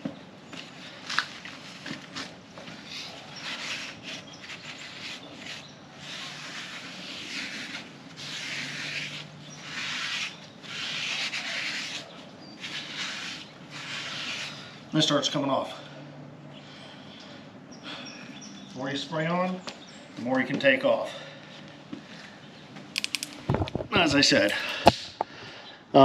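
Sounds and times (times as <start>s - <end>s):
stiff brush scrubbing: 0.9s - 15.2s.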